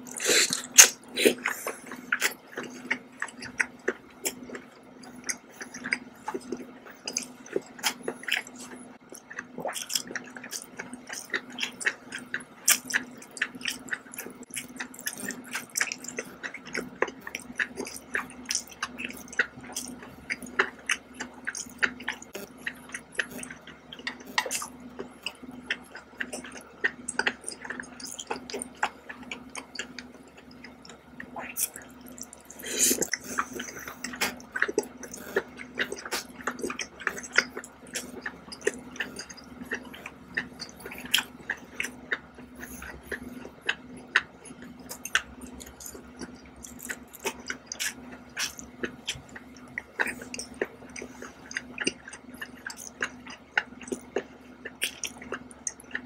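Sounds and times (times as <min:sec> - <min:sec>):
faint low hum: 0:00.0 - 0:56.0
wet chewing mouth clicks: 0:00.1 - 0:56.0.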